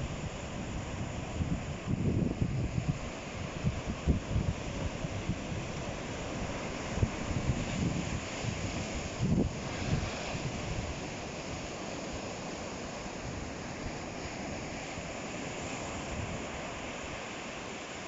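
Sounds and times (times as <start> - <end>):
wind buffeting microphone: 0.0 - 12.2
ocean surf washing on shore: 0.0 - 18.0.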